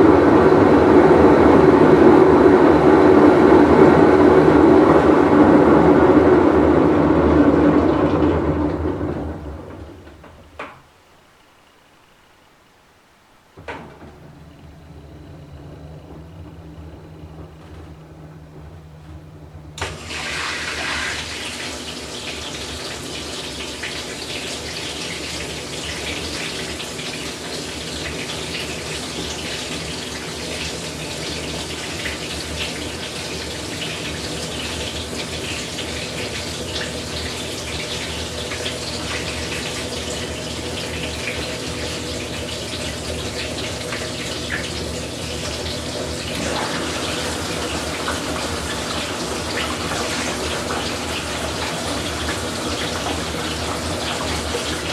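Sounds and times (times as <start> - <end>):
water rushing into washer tub: 0.0 - 11.1, 13.2 - 54.9
washing machine hum: 0.0 - 54.9.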